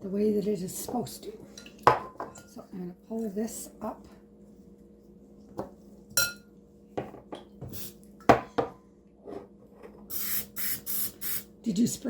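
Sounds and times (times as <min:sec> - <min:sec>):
aerosol spray can hissing: 0:10.1 - 0:11.5.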